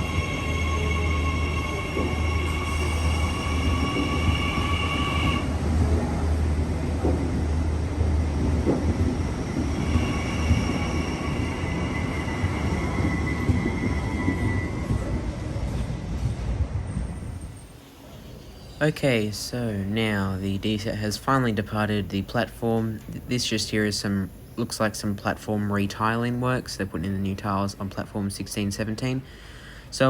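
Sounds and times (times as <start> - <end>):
high-pitched train whine: 0.0 - 6.3, 9.0 - 16.0
train rumbling: 0.0 - 29.3.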